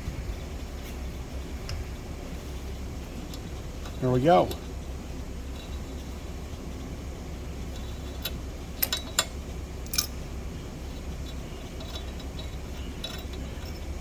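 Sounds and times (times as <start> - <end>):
low workshop hum: 0.0 - 14.0
metal tools clicking: 8.8 - 10.2, 11.3 - 14.0.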